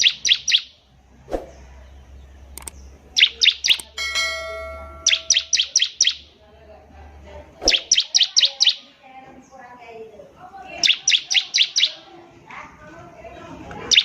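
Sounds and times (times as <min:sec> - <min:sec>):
bird singing high chip notes: 0:00.0 - 0:00.9, 0:01.5 - 0:06.3, 0:07.7 - 0:08.8, 0:10.7 - 0:12.1
ringing bell-like tone: 0:03.8 - 0:05.8.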